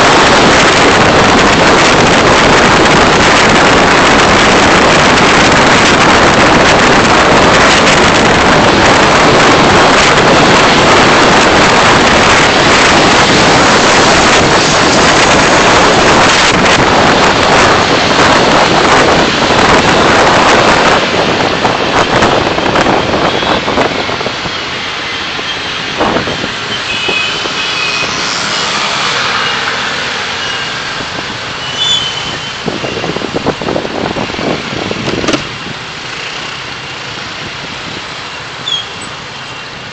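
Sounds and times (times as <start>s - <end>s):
road and wind noise in car: 0.0s - 39.9s
traffic sound: 0.0s - 39.9s.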